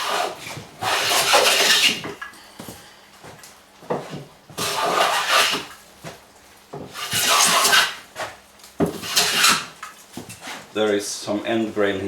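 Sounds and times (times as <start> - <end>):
hand plane shaving strokes: 0.0 - 2.1, 3.9 - 5.7, 6.9 - 8.0, 8.9 - 9.7.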